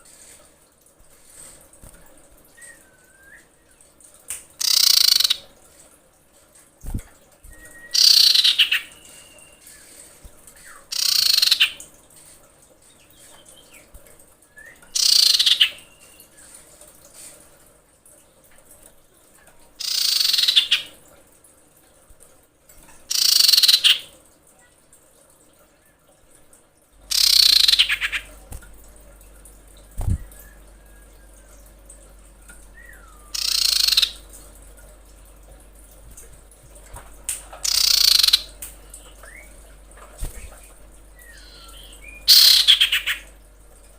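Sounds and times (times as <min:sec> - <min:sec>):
faint short whistled notes: 0:02.6 - 0:03.5
faint thin whistle: 0:02.6 - 0:03.6, 0:07.4 - 0:08.0, 0:14.5 - 0:14.9
bird harsh rattling call: 0:04.6 - 0:05.4, 0:08.0 - 0:09.3, 0:10.9 - 0:11.8, 0:15.0 - 0:15.8, 0:19.8 - 0:20.9, 0:23.1 - 0:24.1, 0:27.1 - 0:28.3, 0:33.3 - 0:34.2, 0:37.6 - 0:38.5, 0:41.3 - 0:43.2.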